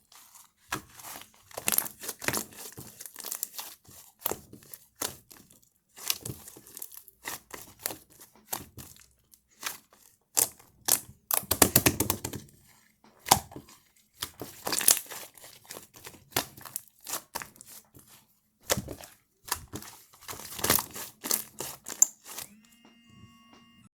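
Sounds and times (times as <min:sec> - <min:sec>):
slime squelching and crackling: 0:00.0 - 0:22.5.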